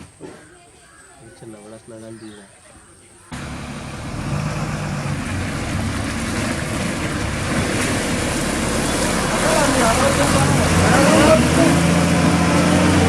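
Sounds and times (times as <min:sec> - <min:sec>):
lorry diesel engine under load: 0:03.3 - 0:13.0.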